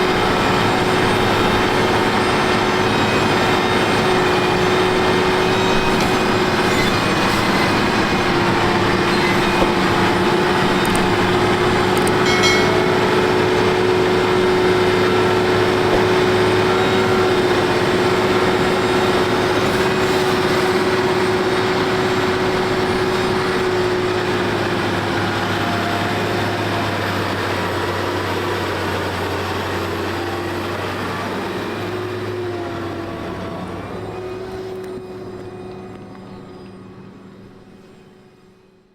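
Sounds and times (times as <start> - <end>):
tractor engine whining: 0.0 - 38.9.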